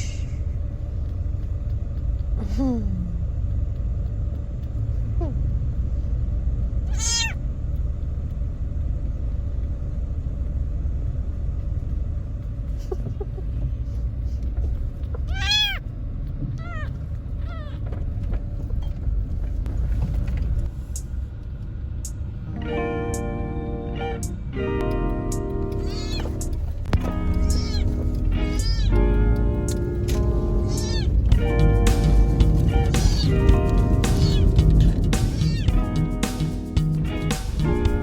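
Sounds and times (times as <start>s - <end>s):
steady low rumble: 0.0s - 38.0s
kitten meowing: 6.9s - 7.4s, 15.2s - 15.8s, 16.6s - 17.8s, 25.8s - 29.2s, 30.5s - 35.8s.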